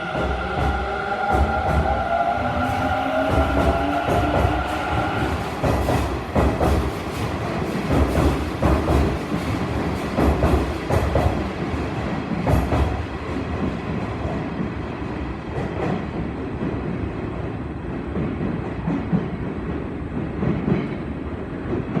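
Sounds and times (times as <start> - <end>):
train wheels clacking: 0.0 - 14.8, 15.5 - 22.0
train rumble: 0.0 - 22.0.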